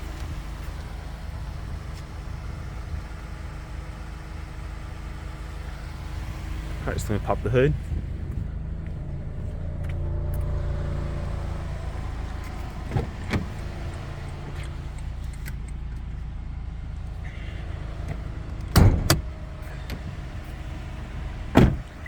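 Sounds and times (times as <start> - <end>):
car engine idling: 0.0 - 22.0
sharp clicks of hood release: 12.2 - 16.1, 18.0 - 20.2, 21.5 - 22.0.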